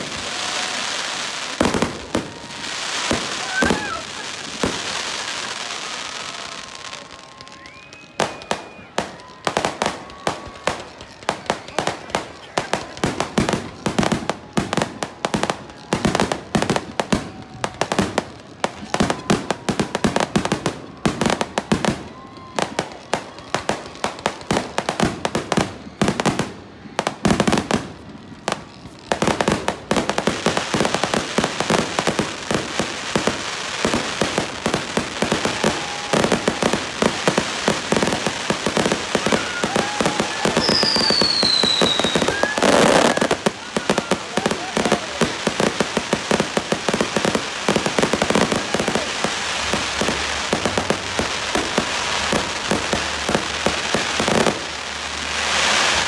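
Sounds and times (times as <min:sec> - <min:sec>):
falling firework whistle: 0:00.0 - 0:26.5, 0:33.1 - 0:56.0
fireworks bangs: 0:00.0 - 0:56.0
fireworks crackle: 0:00.0 - 0:56.0.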